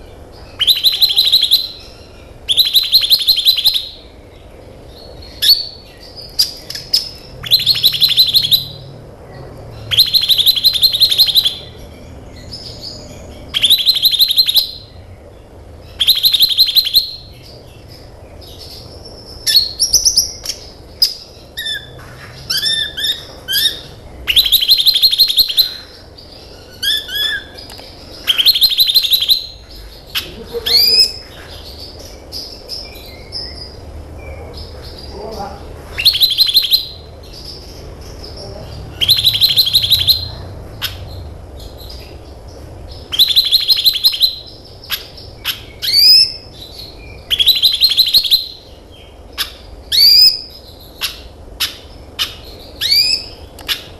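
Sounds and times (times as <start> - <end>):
sunbird fast trills: 38.9 - 41.0
whistled rising notes: 39.0 - 40.3.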